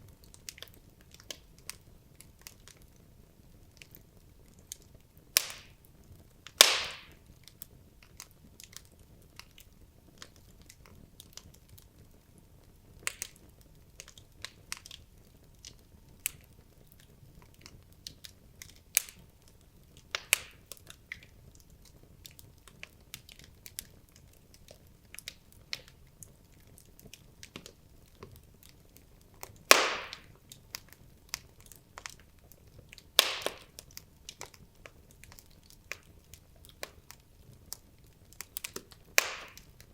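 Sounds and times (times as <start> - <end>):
logs crackling in fireplace: 0.0 - 39.9
loud fire pops: 5.4 - 5.8, 6.5 - 7.2, 20.1 - 20.6, 29.5 - 30.9, 33.1 - 33.8, 38.4 - 39.9.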